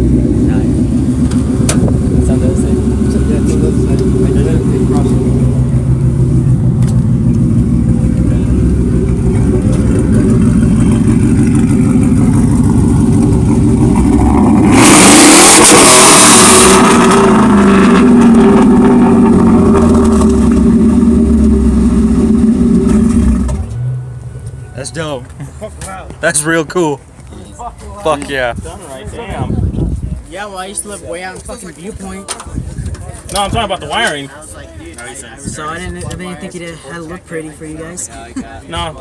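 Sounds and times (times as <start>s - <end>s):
car engine revving: 0.0s - 25.6s.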